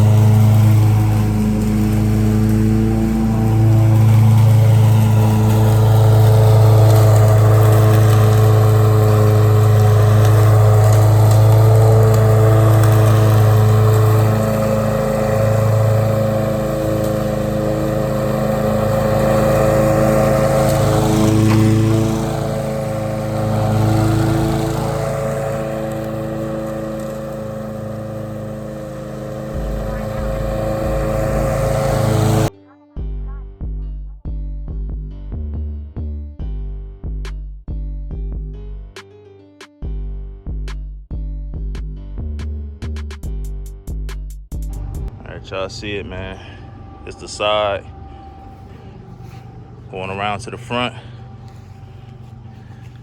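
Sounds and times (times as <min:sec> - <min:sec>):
lawn mower engine running: 0:00.0 - 0:32.5, 0:44.6 - 0:53.0.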